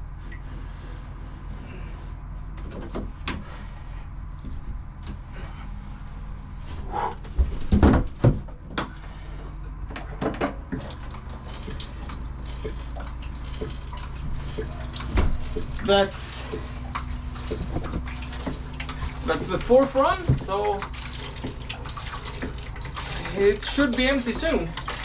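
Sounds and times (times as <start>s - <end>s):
boat diesel engine humming: 10.7s - 25.0s.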